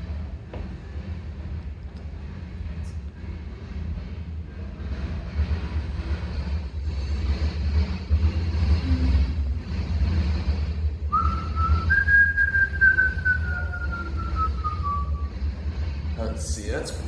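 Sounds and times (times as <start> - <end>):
car driving low rumble: 0.0 - 17.0
freight train: 0.0 - 17.0
person whistling: 11.1 - 15.3.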